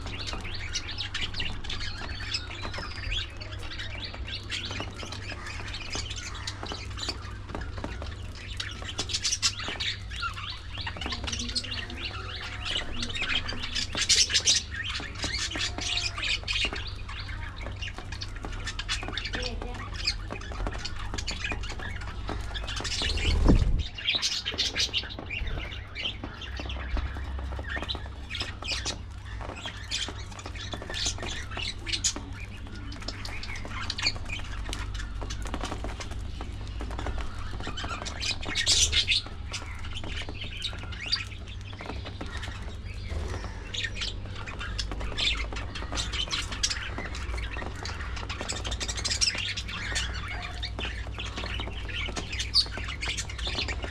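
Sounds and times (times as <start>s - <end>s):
budgerigars chattering: 0.0s - 53.9s
loud rumble: 22.9s - 24.1s.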